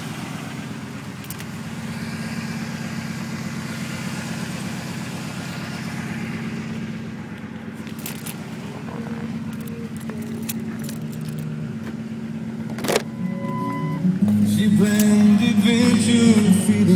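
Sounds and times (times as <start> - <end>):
car engine idling: 0.0 - 16.9
faint high whistle: 13.1 - 14.1.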